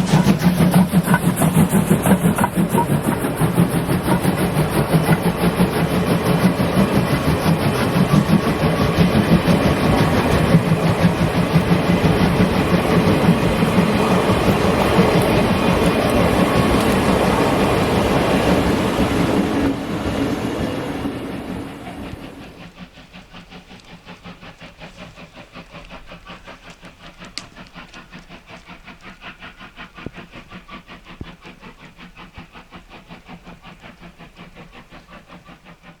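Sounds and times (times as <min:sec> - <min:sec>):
wheels clacking over rail joints: 0:00.0 - 0:22.7
steam hiss: 0:00.0 - 0:36.0
steam locomotive passing: 0:00.0 - 0:36.0.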